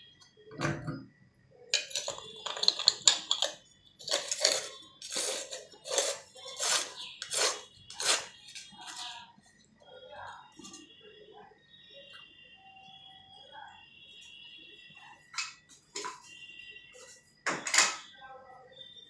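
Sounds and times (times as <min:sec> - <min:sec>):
hand tool scraping rhythmically: 0:04.1 - 0:09.0.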